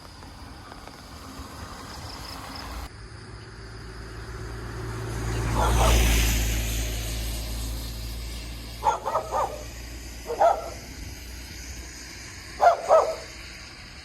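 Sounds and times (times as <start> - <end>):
dog barking: 5.5 - 6.1, 8.8 - 10.9, 12.6 - 13.3.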